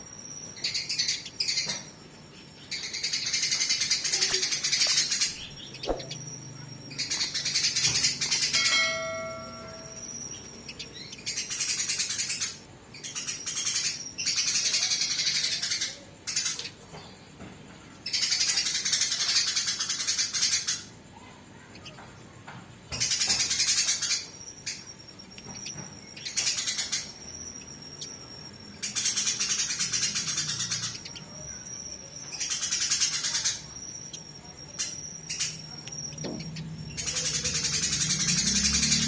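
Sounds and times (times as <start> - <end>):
sparrows chattering: 0.0 - 39.0
whistled bird notes: 2.7 - 15.9.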